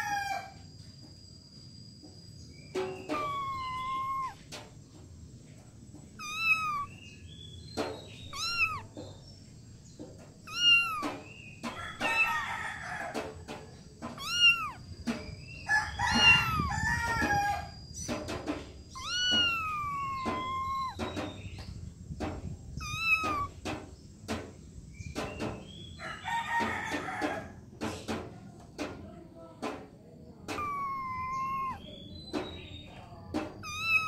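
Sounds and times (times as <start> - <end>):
kittens mewing: 3.0 - 4.6, 6.2 - 7.0, 8.2 - 9.0, 10.4 - 11.3, 11.9 - 12.4, 14.0 - 15.3, 16.1 - 17.2, 18.9 - 21.1, 22.8 - 23.6, 30.5 - 31.9, 33.6 - 34.0.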